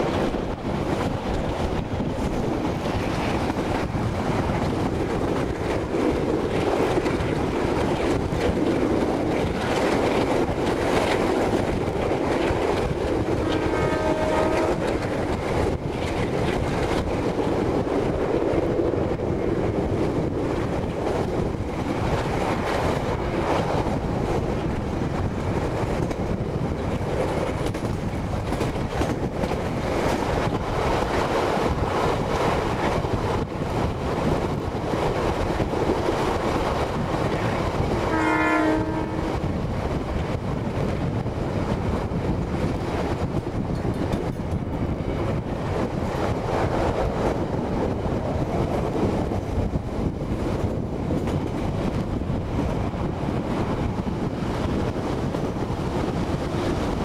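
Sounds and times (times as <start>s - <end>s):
train rumble and rush: 0.0s - 57.0s
wheels clacking over rail joints: 0.0s - 57.0s
train horn: 13.3s - 15.0s, 38.0s - 39.4s.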